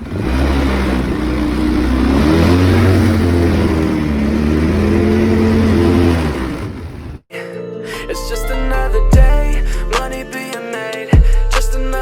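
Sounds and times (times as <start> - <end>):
atv engine revving: 0.0 - 7.2.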